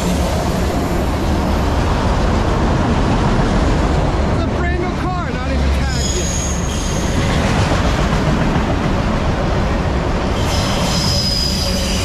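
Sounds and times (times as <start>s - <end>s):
freight cars rumbling on rails: 0.0s - 12.0s
high wheel squeal: 5.8s - 7.3s, 10.2s - 12.0s.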